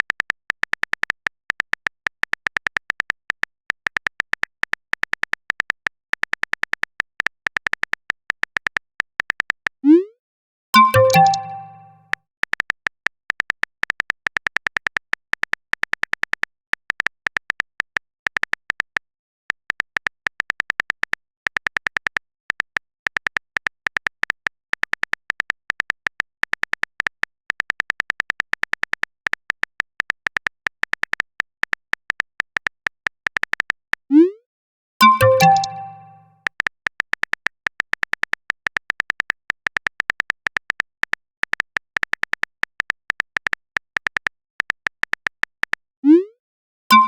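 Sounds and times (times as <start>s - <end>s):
electronic chime: 10.8s - 12.0s, 35.0s - 36.2s
phone keyboard typing clicks: 10.8s - 12.0s, 35.0s - 36.2s.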